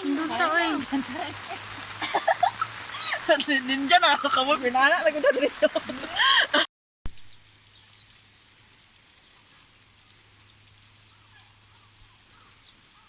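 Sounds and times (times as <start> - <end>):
person's voice: 0.0 - 1.6, 3.0 - 6.6.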